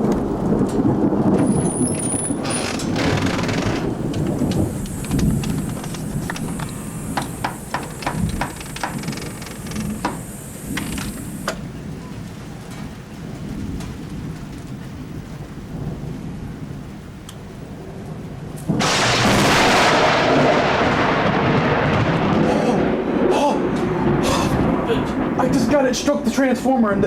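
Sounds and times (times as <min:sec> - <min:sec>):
thunder rumbling: 0:00.0 - 0:27.0
rain hissing: 0:00.2 - 0:17.6, 0:18.6 - 0:26.5
raindrop taps: 0:02.7 - 0:11.6.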